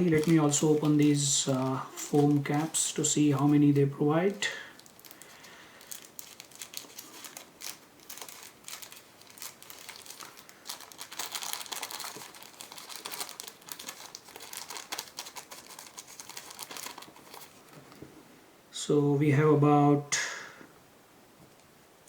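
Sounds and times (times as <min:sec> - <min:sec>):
packaging crinkling and rustling: 0:00.0 - 0:18.2.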